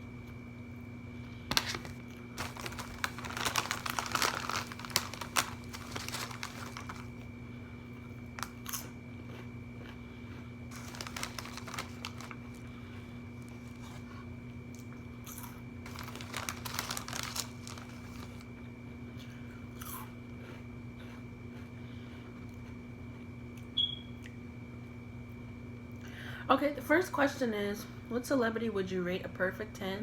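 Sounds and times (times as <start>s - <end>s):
faint hum: 0.0s - 30.0s
food packaging crinkling: 1.5s - 7.3s, 8.3s - 8.9s, 10.7s - 14.2s, 15.3s - 18.5s.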